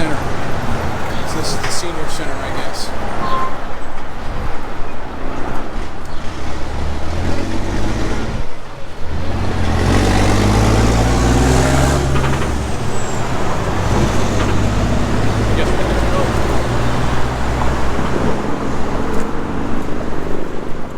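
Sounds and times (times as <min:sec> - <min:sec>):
vehicle engine running: 0:06.1 - 0:20.8.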